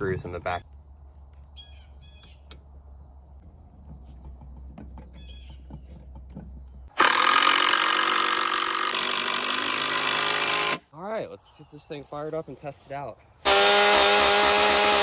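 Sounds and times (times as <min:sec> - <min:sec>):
bird chirping: 0:00.0 - 0:06.9
motor buzzing: 0:13.4 - 0:15.0.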